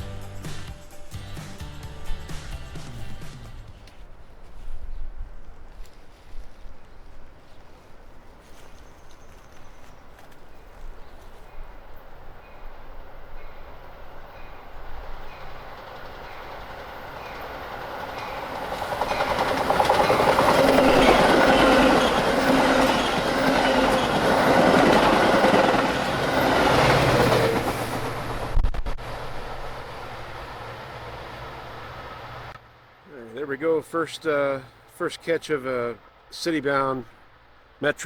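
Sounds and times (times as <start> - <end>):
train wheels clattering over rails: 11.2 - 32.6.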